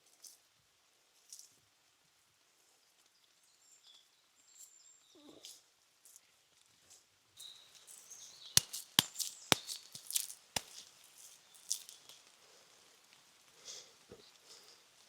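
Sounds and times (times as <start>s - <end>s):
crackling and rustling: 7.7s - 15.0s
sharp cracks: 8.5s - 11.0s.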